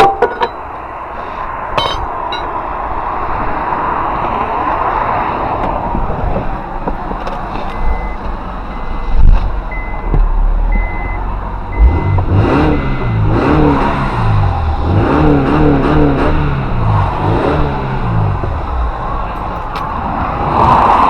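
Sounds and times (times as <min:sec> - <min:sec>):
vehicle rumble: 0:00.0 - 0:21.0
wavering engine-like hum: 0:07.9 - 0:21.0.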